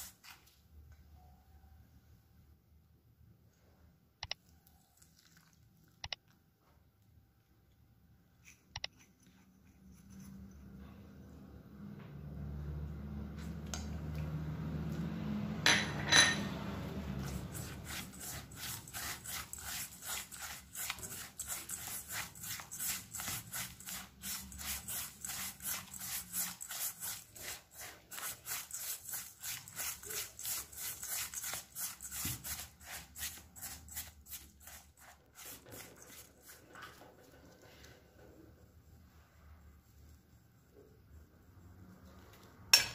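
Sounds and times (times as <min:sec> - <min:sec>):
kitchen utensil scraping: 0:15.7 - 0:38.4.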